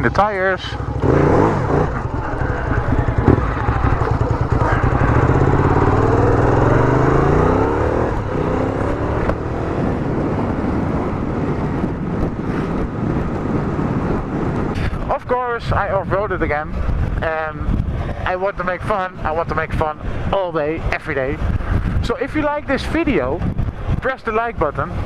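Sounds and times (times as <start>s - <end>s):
motorcycle engine accelerating: 0.0s - 15.1s.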